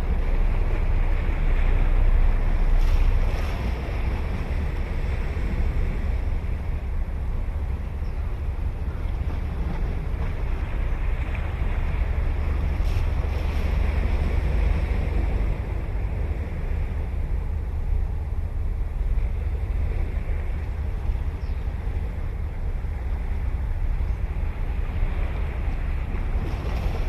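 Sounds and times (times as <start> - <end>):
ocean surf breaking: 0.0 - 7.2, 8.9 - 17.5
wind buffeting microphone: 0.0 - 27.0.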